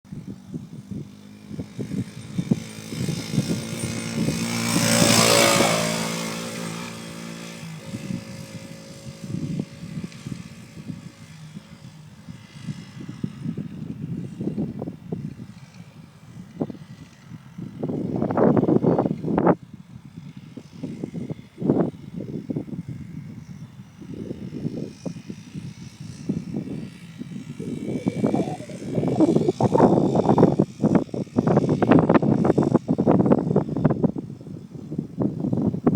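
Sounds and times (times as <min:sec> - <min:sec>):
dirt bike engine passing by: 0:00.2 - 0:14.7, 0:24.0 - 0:33.9.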